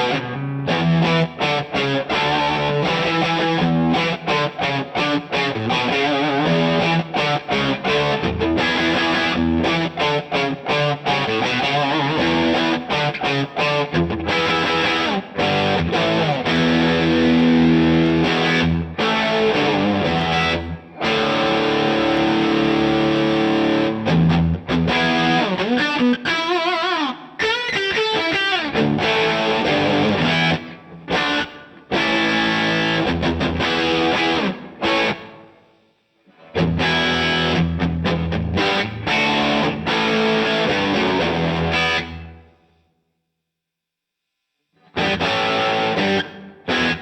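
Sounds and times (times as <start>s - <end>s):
distorted electric guitar: 0.0s - 42.6s, 44.8s - 47.0s.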